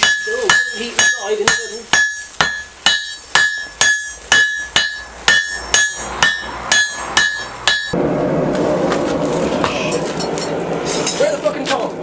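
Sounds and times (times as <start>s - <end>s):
hammer blows on anvil: 0.0s - 8.0s.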